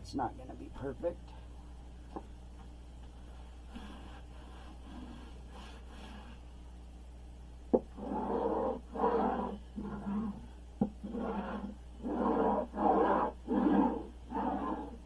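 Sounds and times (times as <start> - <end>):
hand rubbing vinyl covering: 8.0 - 10.4, 11.0 - 15.0.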